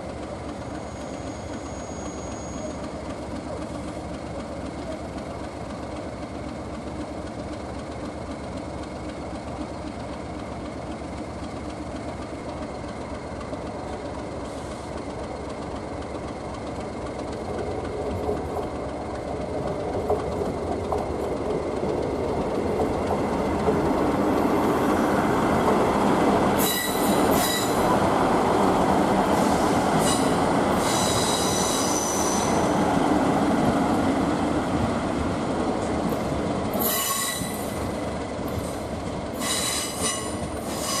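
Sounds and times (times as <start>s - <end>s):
diesel locomotives rumbling: 0.0s - 41.0s
wheels squealing on rails: 0.6s - 3.9s, 26.4s - 33.1s, 36.1s - 41.0s.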